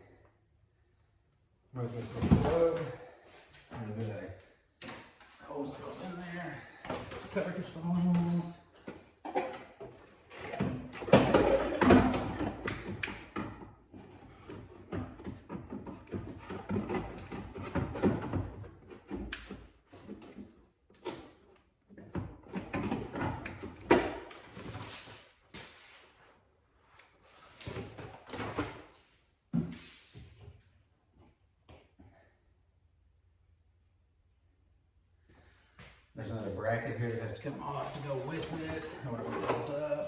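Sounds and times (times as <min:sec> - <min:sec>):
hard parts clunking and scraping: 0:06.9 - 0:21.4, 0:37.6 - 0:40.0.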